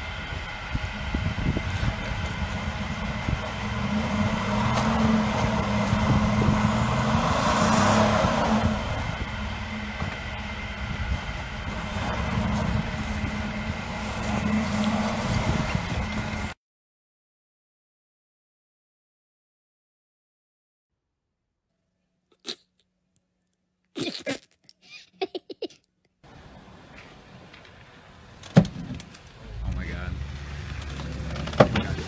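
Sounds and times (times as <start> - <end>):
car engine running under load: 0.0 - 16.6, 26.2 - 32.0
rushing noise: 0.0 - 16.6
wheels spinning in snow: 0.0 - 16.6.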